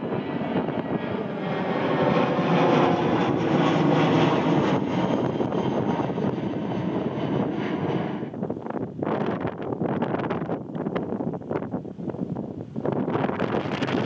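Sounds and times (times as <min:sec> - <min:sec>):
airplane engines roaring past: 0:00.0 - 0:09.0.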